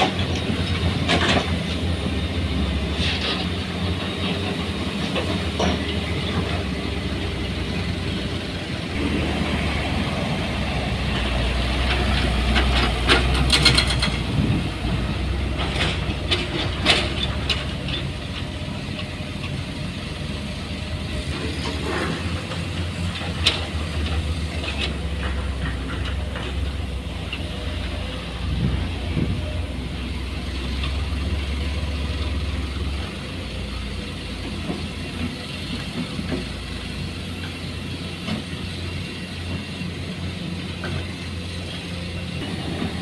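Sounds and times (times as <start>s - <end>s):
heavy machine engine rumbling: 0.0s - 43.0s
sharp metal clanks and knocks: 11.8s - 14.3s.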